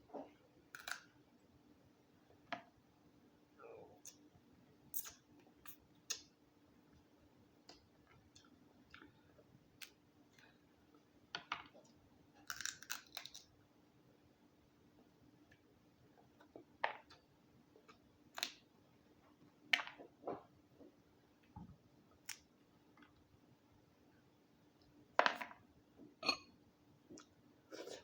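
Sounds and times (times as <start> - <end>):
crab shell cracking: 12.4 - 13.5.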